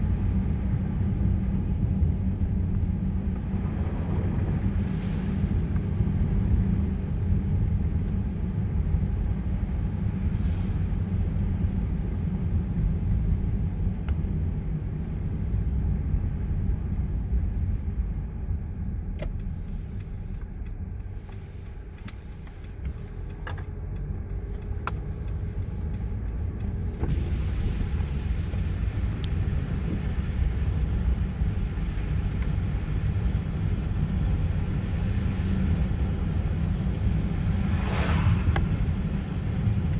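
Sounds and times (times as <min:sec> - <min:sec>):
road and engine rumble: 0:00.0 - 0:39.9
faint clicks: 0:19.1 - 0:27.0.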